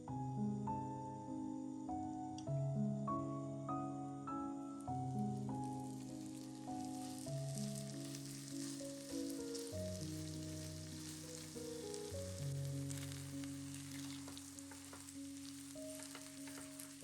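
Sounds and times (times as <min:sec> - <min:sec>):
soft background music: 0:00.0 - 0:17.0
food sizzling in a pan: 0:05.0 - 0:17.0.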